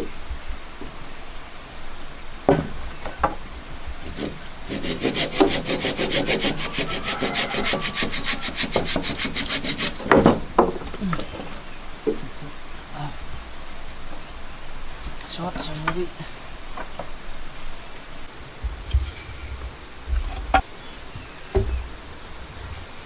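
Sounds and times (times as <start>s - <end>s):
hand saw cutting wood: 3.8s - 11.6s
thumps: 7.6s - 12.4s, 18.6s - 22.8s
knocks on wood: 9.9s - 11.3s.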